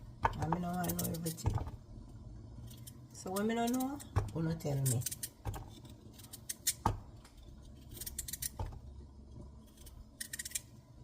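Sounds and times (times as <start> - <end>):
knife scraping vegetable: 7.4 - 8.6.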